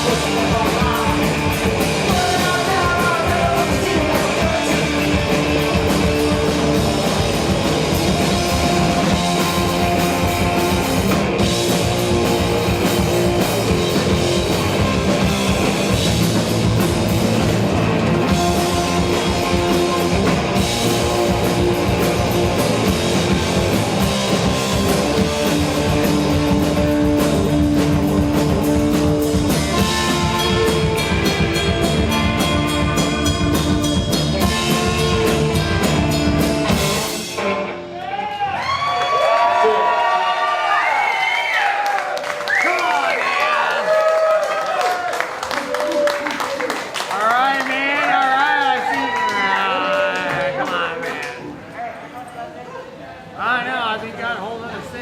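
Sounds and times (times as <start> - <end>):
drum kit: 0.0 - 38.8
loud guitars: 0.0 - 51.7.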